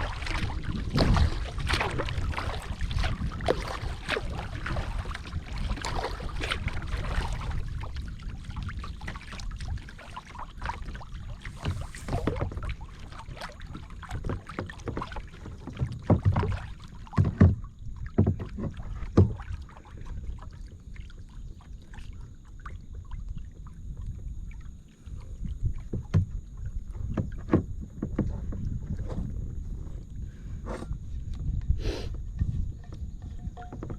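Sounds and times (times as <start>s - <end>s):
kayak paddle splashing water: 0.0s - 29.5s, 32.4s - 33.9s
paddle knocks: 11.5s - 19.6s, 25.8s - 29.3s, 32.4s - 33.9s.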